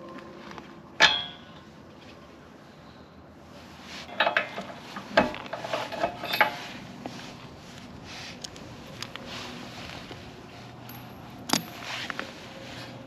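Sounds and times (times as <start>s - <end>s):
metal clinks and knocks: 4.1s - 6.8s, 10.8s - 12.2s.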